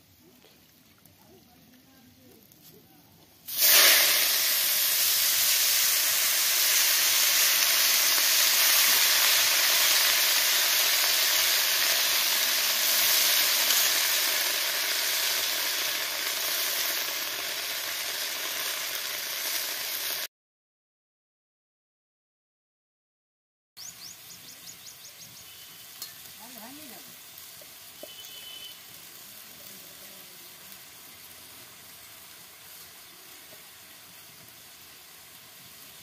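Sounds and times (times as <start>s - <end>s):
vegetables sizzling in hot oil: 0.0s - 20.3s, 23.8s - 36.0s.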